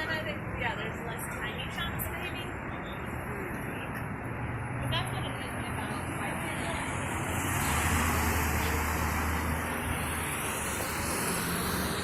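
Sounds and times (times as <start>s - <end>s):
road and traffic noise: 0.0s - 12.0s
vehicle engine drone: 3.2s - 12.0s.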